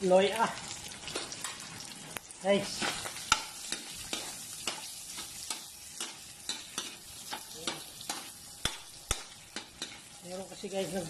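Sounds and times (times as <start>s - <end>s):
fat sizzling in a wok: 0.0s - 11.0s
metal ladle scraping a pan: 2.7s - 10.2s.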